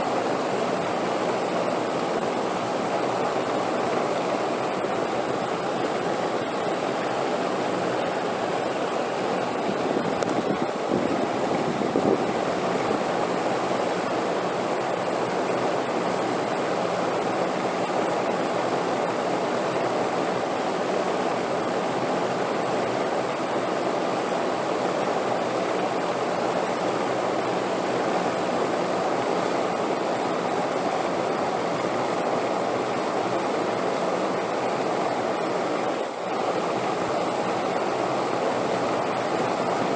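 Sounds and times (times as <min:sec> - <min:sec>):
steady wind rushing: 0:08.4 - 0:13.3.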